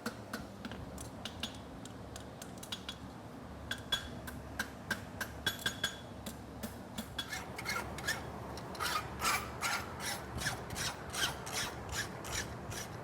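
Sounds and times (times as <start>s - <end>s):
file rasping on hot steel: 8.8s - 13.0s.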